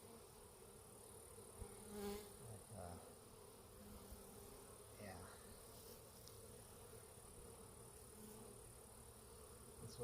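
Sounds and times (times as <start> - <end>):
bees humming: 0.0 - 10.0.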